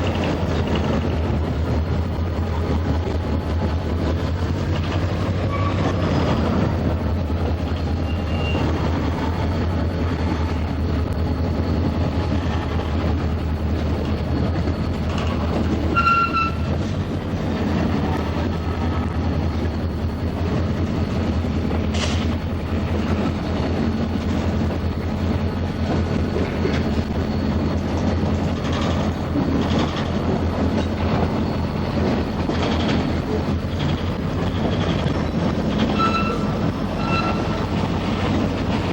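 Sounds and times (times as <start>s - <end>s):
freight train wheels rumbling: 0.0s - 38.9s
high-pitched wheel squeaks: 5.2s - 6.7s, 7.6s - 16.9s, 22.0s - 38.9s.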